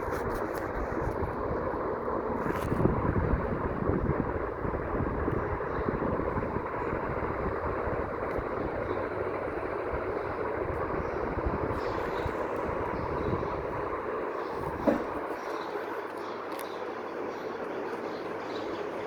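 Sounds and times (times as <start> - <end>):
ceiling fan running: 0.0 - 19.0.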